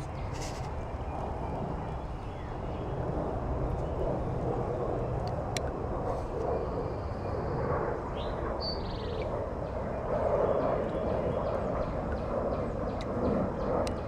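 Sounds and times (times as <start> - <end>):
airplane rumbling overhead: 0.0 - 14.0.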